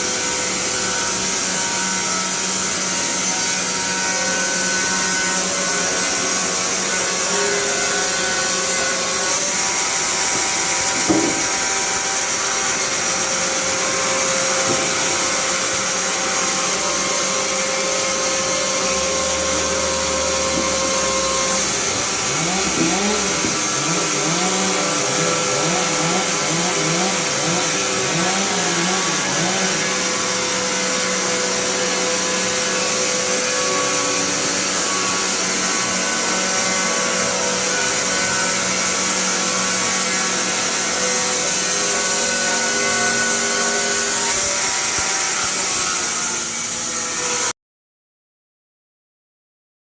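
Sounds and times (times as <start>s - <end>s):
sawmill cutting whine: 0.0s - 47.5s
knock: 10.9s - 11.6s.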